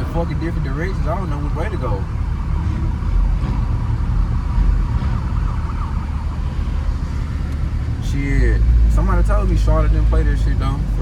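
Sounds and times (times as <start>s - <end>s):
distant siren wailing: 0.0s - 7.8s
low car rumble: 0.0s - 11.0s.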